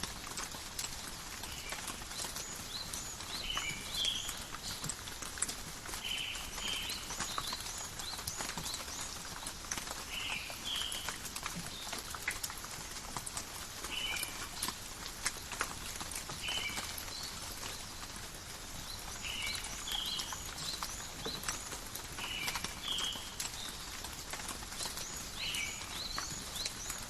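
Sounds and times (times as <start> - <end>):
rain dripping on leaves: 0.0 - 27.0.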